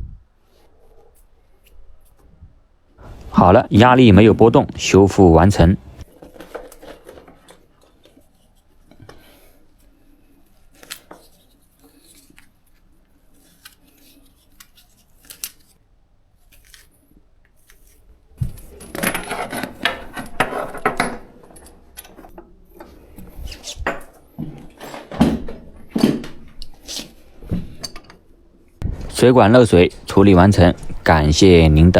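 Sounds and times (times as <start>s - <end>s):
metal objects clattering: 18.4s - 22.5s.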